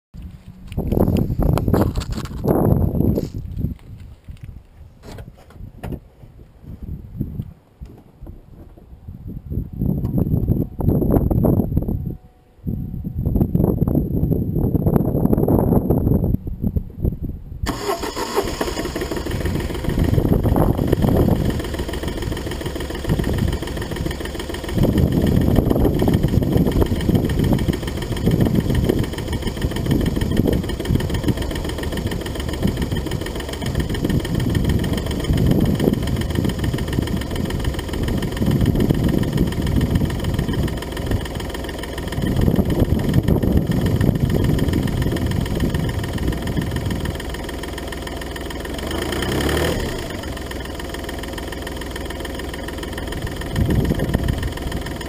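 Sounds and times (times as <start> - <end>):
diesel engine idling roughly: 17.7 - 55.0.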